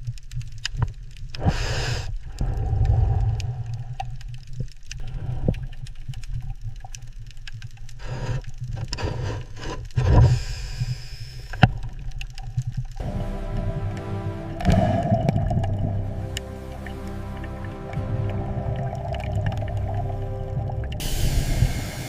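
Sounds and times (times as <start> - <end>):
steady low rumble: 12.9 - 22.0
music with sustained tones: 13.0 - 22.0
hissing: 18.5 - 22.0.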